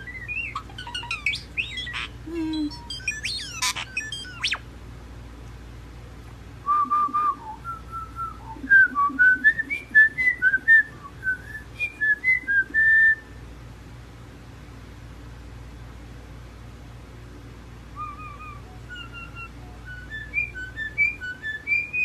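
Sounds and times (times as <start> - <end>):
bird whistling a tune: 0.0 - 4.6, 6.7 - 13.4, 18.0 - 22.0.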